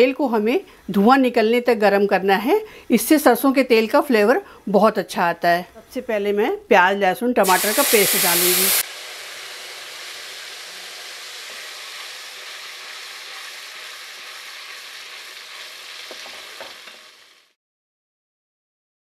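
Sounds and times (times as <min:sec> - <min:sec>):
paste sizzling in hot oil: 0:07.4 - 0:17.6.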